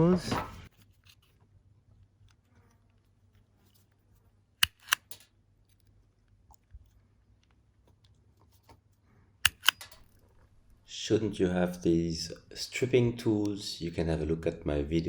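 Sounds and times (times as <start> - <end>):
cable stripper snapping shut: 4.6 - 5.2, 9.5 - 10.5.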